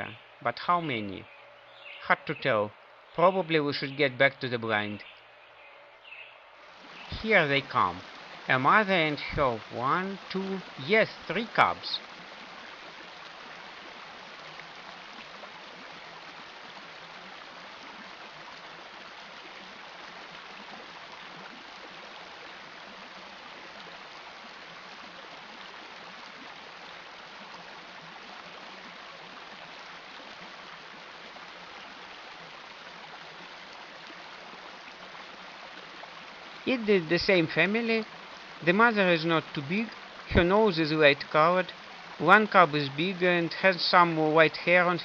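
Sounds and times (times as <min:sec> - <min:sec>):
river water rushing: 0:00.0 - 0:45.0.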